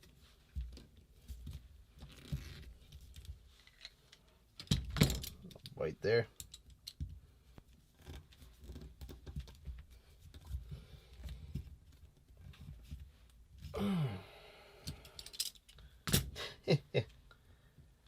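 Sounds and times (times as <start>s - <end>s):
breathy sigh: 13.7s - 15.4s.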